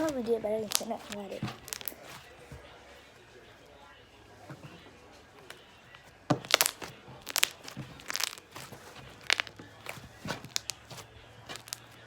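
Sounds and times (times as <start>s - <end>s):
slime squished in hands: 6.3s - 11.9s.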